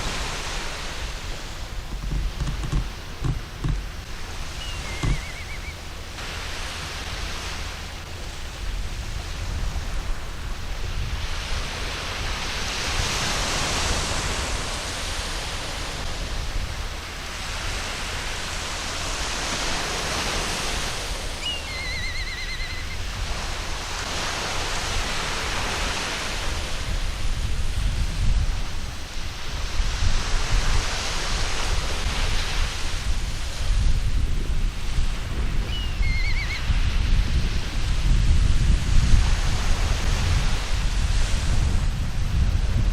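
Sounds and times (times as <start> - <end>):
waves breaking on a beach: 0.0 - 42.9
seagull call: 4.5 - 5.9, 21.4 - 23.0, 35.7 - 36.7.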